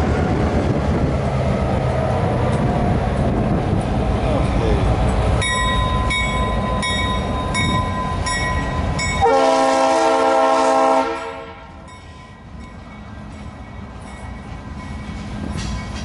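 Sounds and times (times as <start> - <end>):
freight train rolling past: 0.0 - 16.0
crossing bell dinging: 5.1 - 9.8, 11.6 - 16.0
locomotive air horn blast: 9.2 - 11.8.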